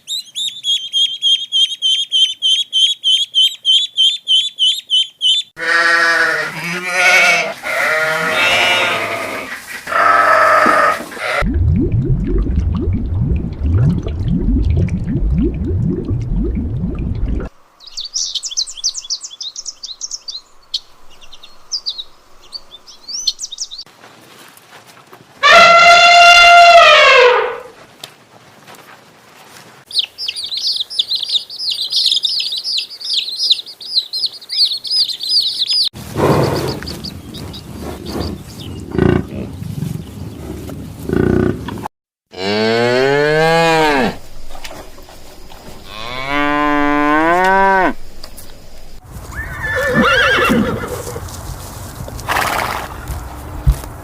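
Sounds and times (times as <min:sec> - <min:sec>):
high-pitched bird chatter: 0:00.0 - 0:05.5, 0:29.9 - 0:39.0
bird chirping: 0:00.0 - 0:05.6, 0:17.8 - 0:23.9, 0:29.9 - 0:40.5
cattle mooing: 0:05.6 - 0:11.4, 0:42.3 - 0:44.2, 0:45.8 - 0:48.0
loud call falling in pitch: 0:25.4 - 0:27.7.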